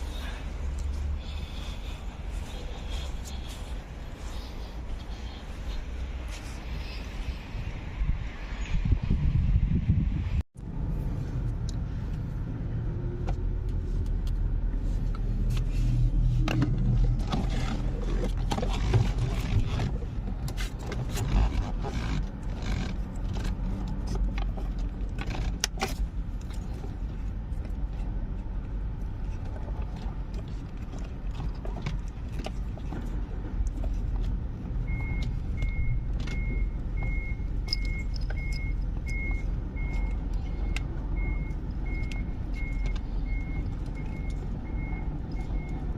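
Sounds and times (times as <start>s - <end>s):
reversing alarm beeping: 34.9s - 45.8s.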